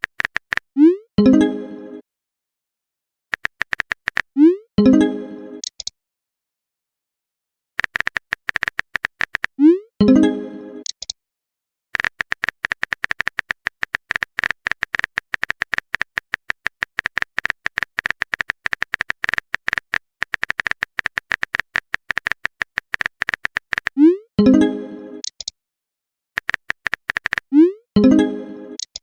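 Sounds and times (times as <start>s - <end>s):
keyboard typing clicks: 0.0s - 0.7s, 3.3s - 4.5s, 5.6s - 5.9s, 7.8s - 9.7s, 10.8s - 11.2s, 12.0s - 24.6s, 25.2s - 25.6s, 26.4s - 28.2s, 28.8s - 29.0s.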